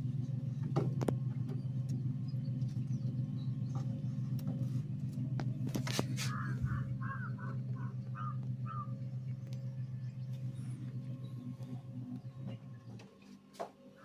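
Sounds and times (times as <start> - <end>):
low hum: 0.0 - 14.0
bird calling: 5.8 - 13.1.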